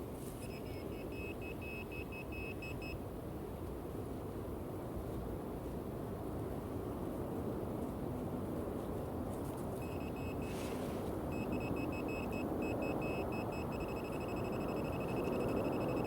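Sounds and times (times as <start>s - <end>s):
metal detector beeping: 0.4s - 3.0s, 9.8s - 10.6s, 11.3s - 16.0s
low rustling noise: 3.6s - 11.3s.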